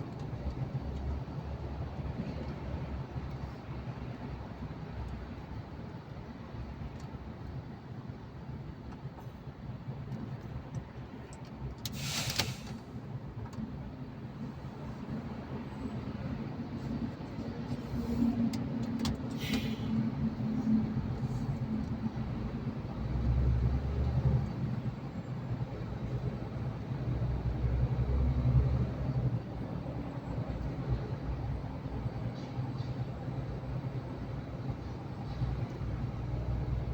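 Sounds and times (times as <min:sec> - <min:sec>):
truck engine and road rumble: 0:00.0 - 0:36.9
short hisses: 0:11.9 - 0:12.8, 0:19.3 - 0:20.0.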